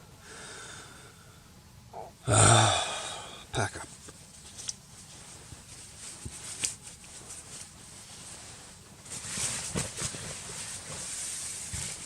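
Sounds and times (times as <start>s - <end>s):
camping gear rustling: 4.4s - 12.0s.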